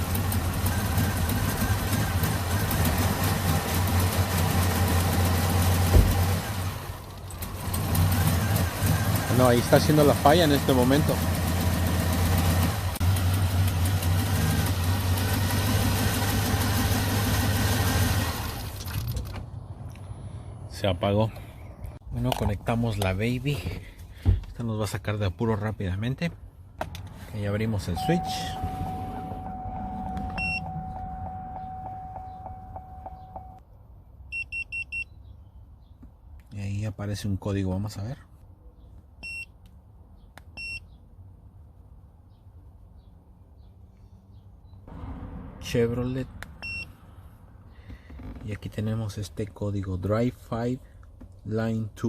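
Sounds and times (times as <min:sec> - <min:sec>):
car engine running rough: 0:00.0 - 0:19.0, 0:28.0 - 0:33.6
scan tool beeping: 0:28.0 - 0:33.6.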